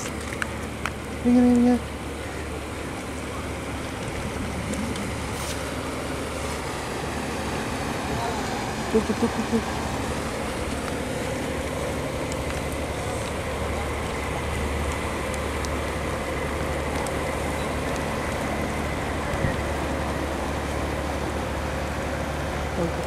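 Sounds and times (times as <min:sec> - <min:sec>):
low hum: 0:00.0 - 0:23.0
rain: 0:00.0 - 0:23.0
wind: 0:00.0 - 0:23.0.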